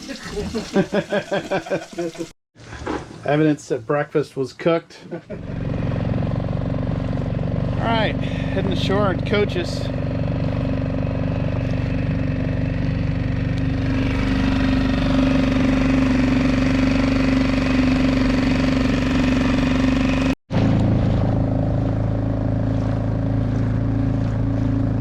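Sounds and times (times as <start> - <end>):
outboard motor running: 5.3 - 25.0.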